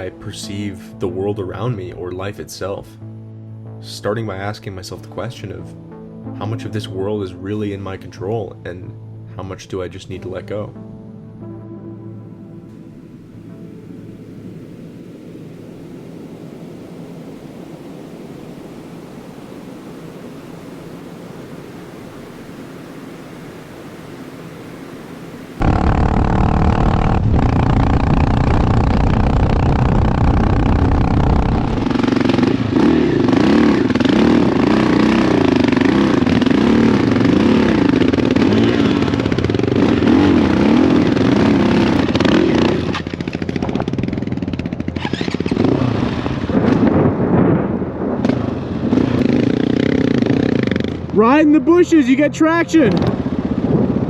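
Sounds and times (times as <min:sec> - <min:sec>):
steady hiss: 0:12.7 - 0:38.4
dirt bike engine revving: 0:25.0 - 0:46.5, 0:48.9 - 0:51.2.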